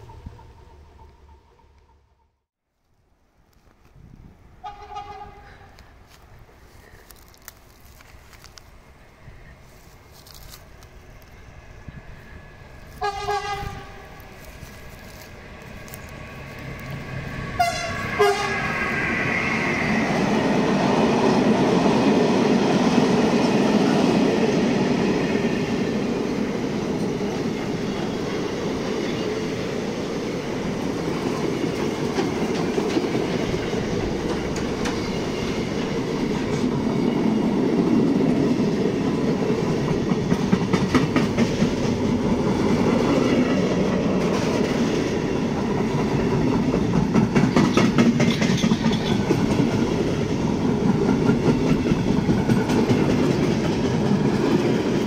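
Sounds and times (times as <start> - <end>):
freight train rumbling past: 0.0 - 2.0, 4.2 - 55.0
locomotive horn blast: 4.6 - 5.8, 13.0 - 14.3, 17.5 - 19.0
wheels clacking over rail joints: 26.4 - 55.0.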